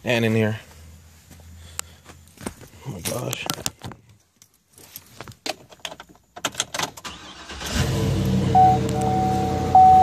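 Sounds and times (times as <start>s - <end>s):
electronic warning tone: 8.5s - 10.0s.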